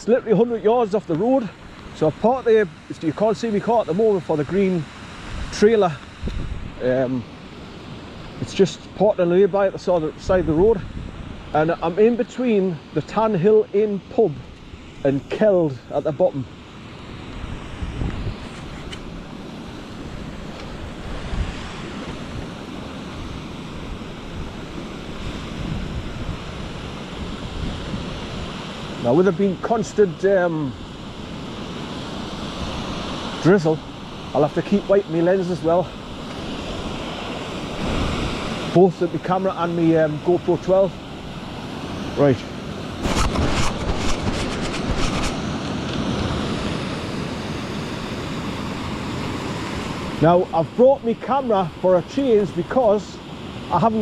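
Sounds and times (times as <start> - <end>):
wind buffeting microphone: 5.0 - 8.6, 9.8 - 12.0, 17.0 - 29.1, 35.8 - 50.2
waterfall rushing: 19.2 - 52.8.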